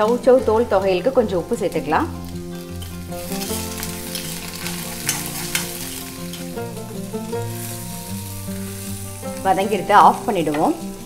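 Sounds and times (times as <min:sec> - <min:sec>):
background music of held notes: 0:00.0 - 0:11.0
food sizzling in a pan: 0:00.0 - 0:11.0
spatula scraping a pan: 0:02.8 - 0:06.5.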